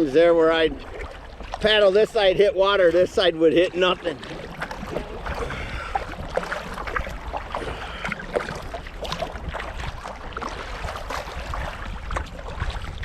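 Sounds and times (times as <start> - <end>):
paddle splashing in water: 0.0 - 13.0
wind on microphone: 4.3 - 13.0.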